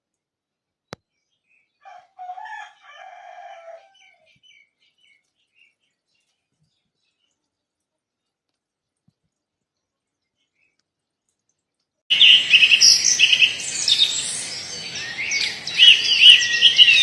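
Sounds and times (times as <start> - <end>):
small birds chirping: 0.8 - 17.0
rooster crowing: 1.8 - 4.2, 12.2 - 17.0.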